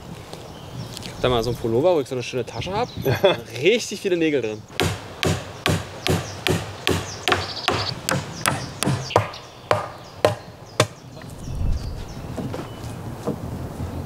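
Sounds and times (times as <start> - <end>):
hammer striking nails into wood: 4.8 - 11.0.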